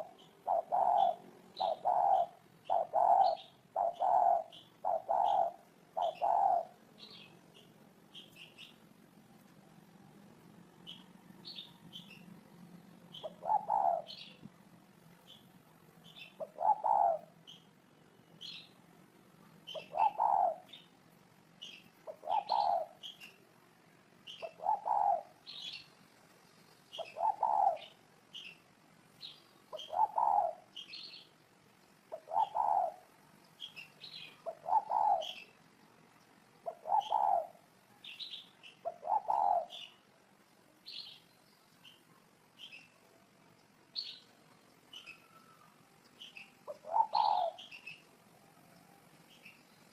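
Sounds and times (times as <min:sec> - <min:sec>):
dove cooing: 0:00.0 - 0:07.3, 0:13.1 - 0:14.4, 0:16.1 - 0:17.5, 0:19.7 - 0:20.8, 0:22.0 - 0:23.2, 0:24.3 - 0:25.8, 0:26.9 - 0:28.0, 0:29.7 - 0:30.7, 0:32.1 - 0:33.2, 0:34.1 - 0:35.5, 0:36.6 - 0:37.7, 0:38.8 - 0:39.9, 0:44.9 - 0:48.0
small birds chirping: 0:00.0 - 0:49.9.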